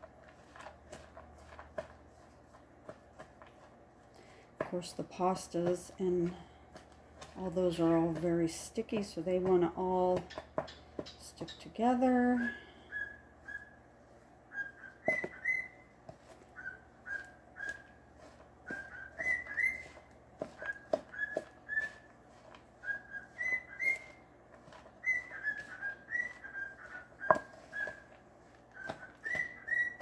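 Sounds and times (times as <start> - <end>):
parrot whistling: 12.9 - 13.8, 14.5 - 15.9, 16.6 - 18.0, 18.7 - 22.1, 22.8 - 24.2, 25.0 - 28.1, 28.8 - 30.0.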